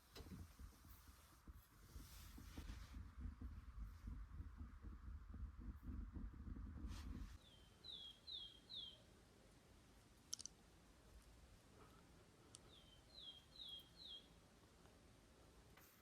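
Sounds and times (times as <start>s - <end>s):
songbird whistling: 7.4s - 9.0s, 12.7s - 14.4s
sharp click: 10.3s - 10.5s.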